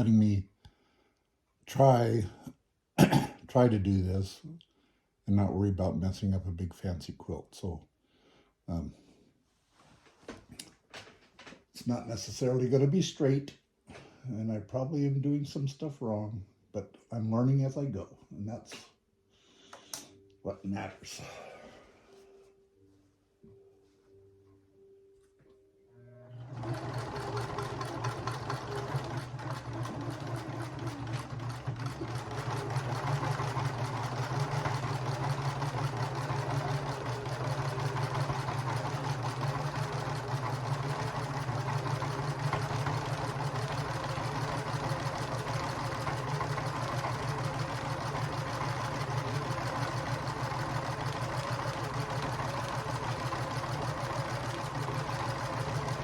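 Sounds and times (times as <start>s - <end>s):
sewing machine stitching: 26.4s - 56.0s.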